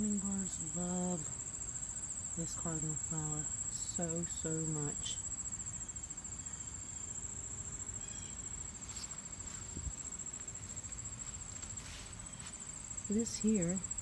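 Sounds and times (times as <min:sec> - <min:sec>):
insects chorus: 0:00.0 - 0:14.0
low background rustle: 0:08.8 - 0:13.9.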